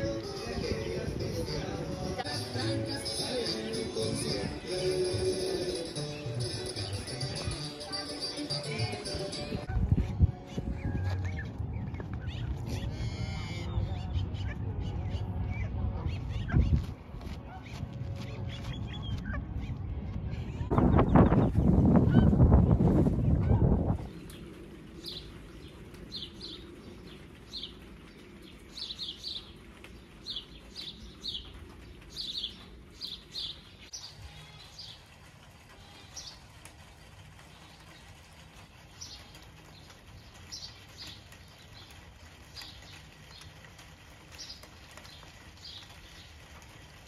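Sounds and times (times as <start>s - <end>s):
small songbirds chirping: 24.0s - 35.2s, 35.8s - 46.8s.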